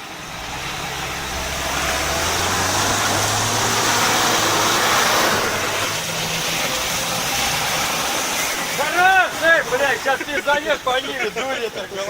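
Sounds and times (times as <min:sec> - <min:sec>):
tyres spinning through mud: 0:00.0 - 0:12.0
vehicle engine under hard load: 0:00.0 - 0:12.0.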